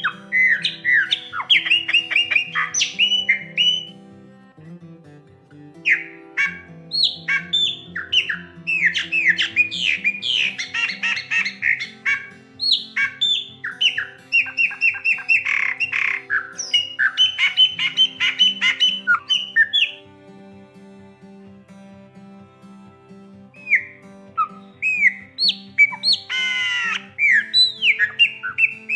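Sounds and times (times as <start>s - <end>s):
bird singing: 0.0s - 4.0s, 5.8s - 20.0s, 23.6s - 28.9s
soft background music: 0.0s - 28.9s.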